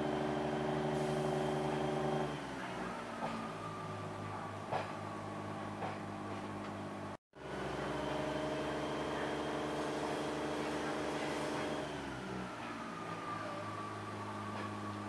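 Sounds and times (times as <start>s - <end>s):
diesel railbus engine drone: 0.0s - 15.0s.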